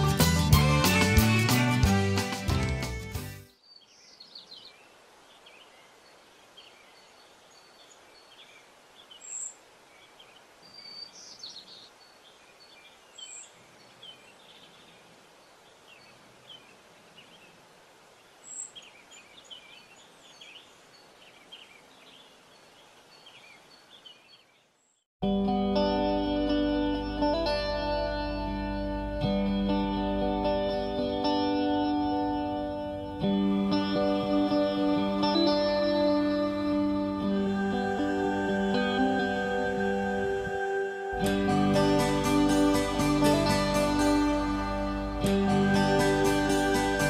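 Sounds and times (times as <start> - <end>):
music: 0.0 - 3.6, 25.2 - 47.0
steady outdoor hiss: 0.0 - 25.0, 25.9 - 47.0
small birds chirping: 3.6 - 25.1.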